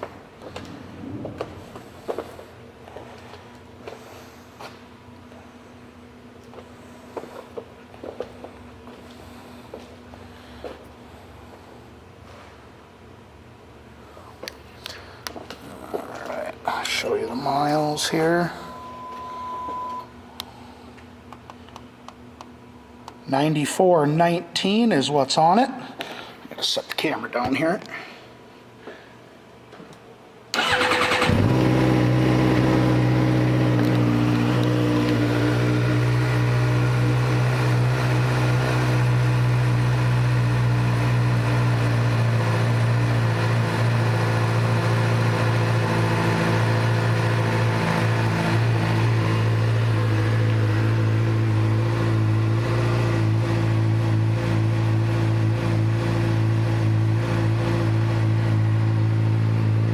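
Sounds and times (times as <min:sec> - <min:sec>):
motorcycle engine starting and idling: 0:30.5 - 0:59.9.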